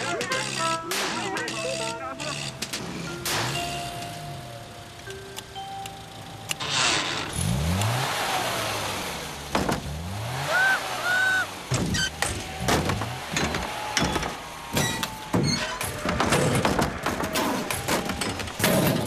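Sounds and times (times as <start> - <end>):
cartoon car engine revving: 6.5 - 14.8.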